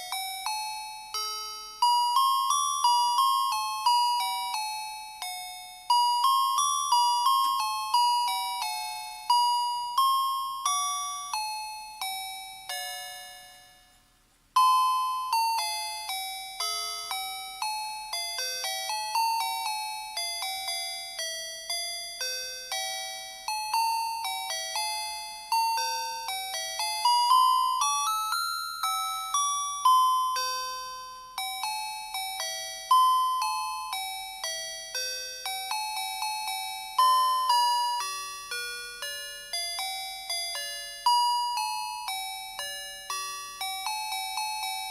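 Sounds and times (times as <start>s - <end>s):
electronic beeping carol melody: 14.6s - 44.9s.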